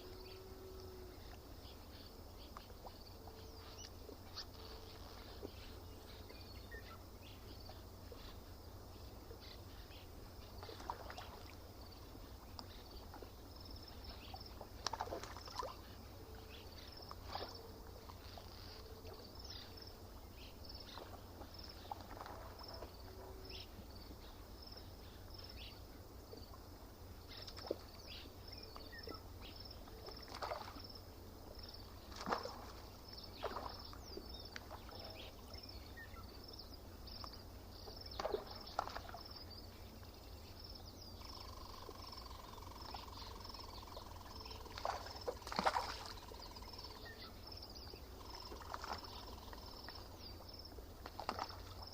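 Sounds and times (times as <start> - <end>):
small waves lapping: 0.0 - 51.9
short splashes: 10.6 - 11.6, 14.8 - 15.8, 30.0 - 30.9, 32.0 - 35.2, 38.1 - 39.3, 44.3 - 46.3, 48.5 - 49.3, 51.0 - 51.9.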